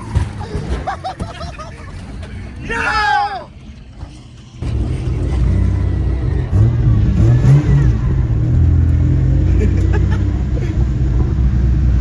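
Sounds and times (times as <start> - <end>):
car engine revving: 4.6 - 12.0.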